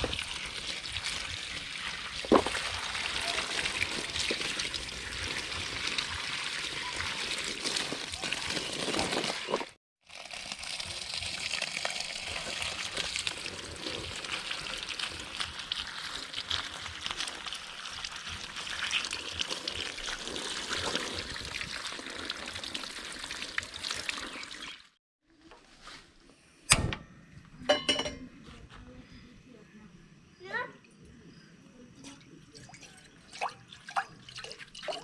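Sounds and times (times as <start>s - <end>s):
water running and trickling: 0.0s - 25.0s, 32.1s - 35.0s.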